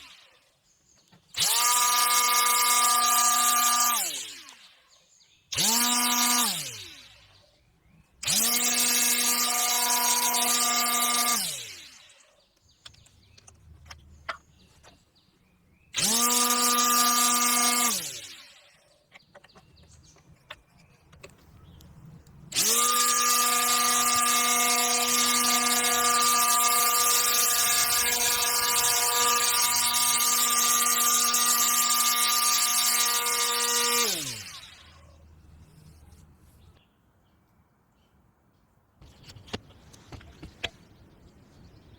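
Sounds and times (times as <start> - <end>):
electric motor whining: 1.3 - 4.8, 5.5 - 7.3, 8.2 - 12.2, 16.0 - 18.7, 22.4 - 36.7.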